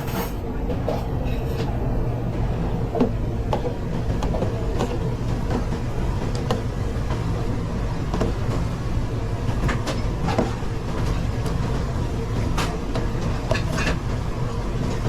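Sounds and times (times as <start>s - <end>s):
steady low kitchen rumble: 0.0s - 15.0s
pans and utensils clinking: 13.4s - 14.0s.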